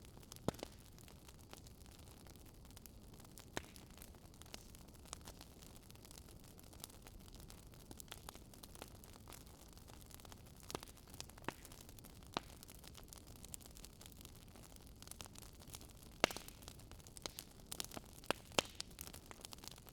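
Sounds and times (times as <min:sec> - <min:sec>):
wood fire crackling: 0:00.0 - 0:19.9
fire pops: 0:00.3 - 0:00.9, 0:03.4 - 0:04.7, 0:10.7 - 0:12.8, 0:14.7 - 0:19.9.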